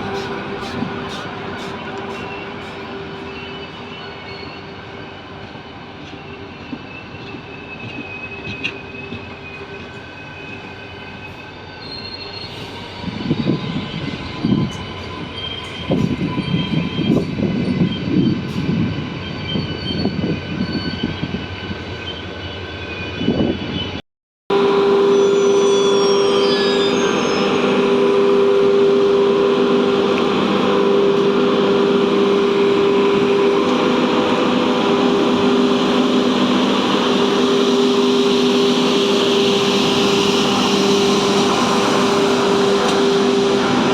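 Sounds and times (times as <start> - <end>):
train running on rails: 0.0 - 43.9
wheel squeal: 25.0 - 27.7.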